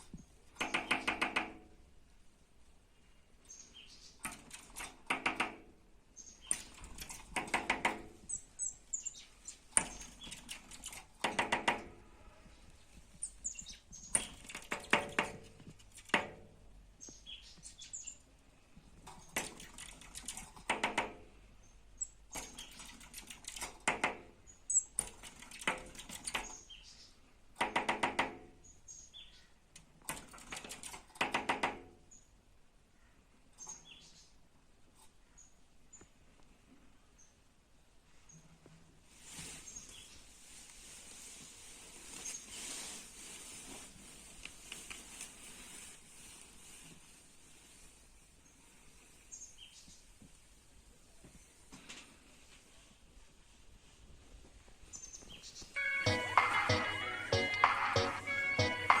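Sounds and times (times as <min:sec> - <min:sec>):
bird rapid tapping: 0:00.5 - 0:01.7.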